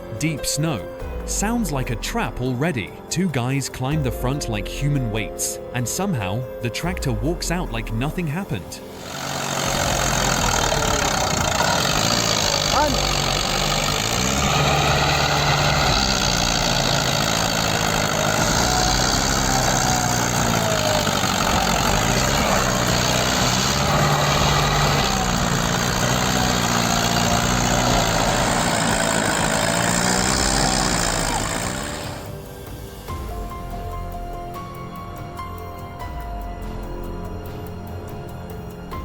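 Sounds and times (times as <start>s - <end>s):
tractor engine labouring: 7.1s - 32.6s.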